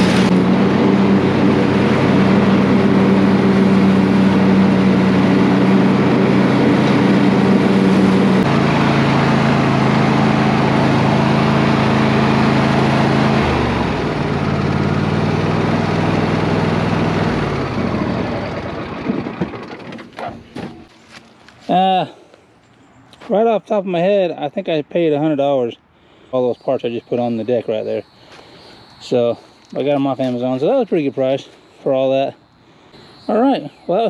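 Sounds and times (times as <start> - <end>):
riding lawn mower engine running: 0.0 - 22.0.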